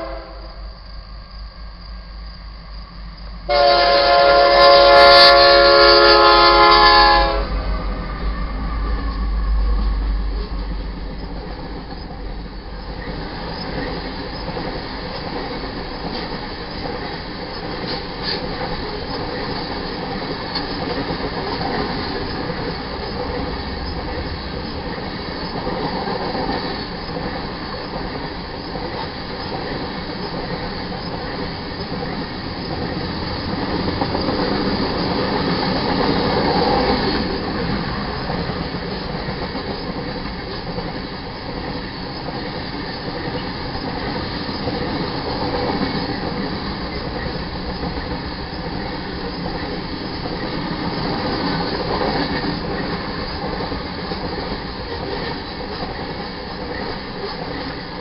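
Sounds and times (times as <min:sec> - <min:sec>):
train wheels rolling on rails: 0:00.0 - 0:58.0.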